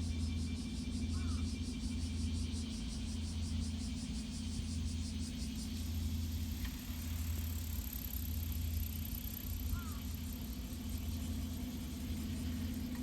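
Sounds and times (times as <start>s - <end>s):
faint rapid high-pitched pulsing: 3.3s - 13.0s.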